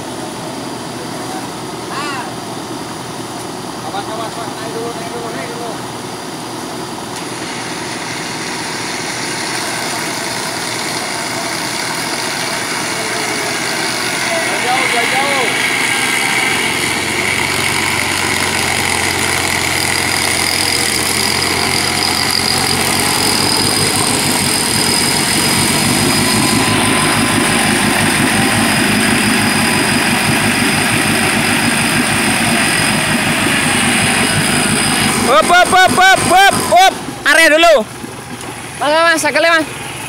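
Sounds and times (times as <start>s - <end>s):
off-road vehicle engine running: 0.0s - 40.0s
rough pulsing low sound: 12.7s - 38.8s.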